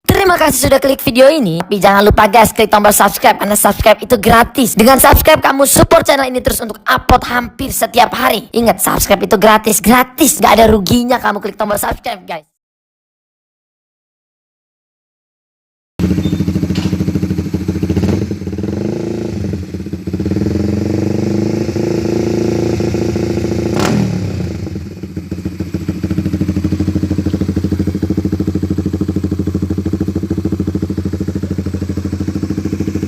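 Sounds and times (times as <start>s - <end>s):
exhaust crack: 16.0s - 33.0s
motorcycle engine revving and idling: 16.0s - 33.0s.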